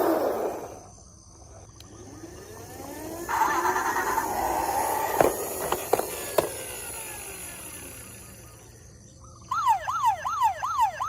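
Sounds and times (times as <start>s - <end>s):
toy car whining: 0.0s - 0.9s, 1.5s - 11.0s
steady buzzing: 1.8s - 9.2s.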